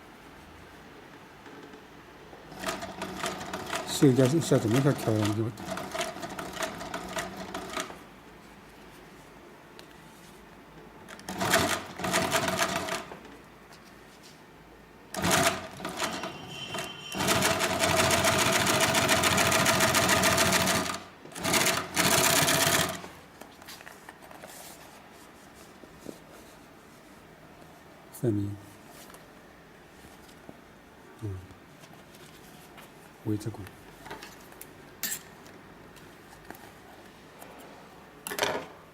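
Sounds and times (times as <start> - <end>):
sewing machine stitching: 2.5 - 8.0, 11.2 - 13.1, 15.1 - 23.1.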